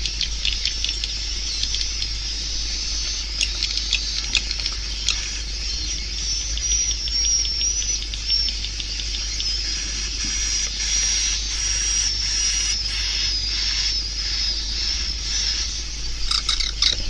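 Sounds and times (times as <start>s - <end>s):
high wavering bird twitter: 0.0s - 17.0s
fast clicks: 16.2s - 17.0s.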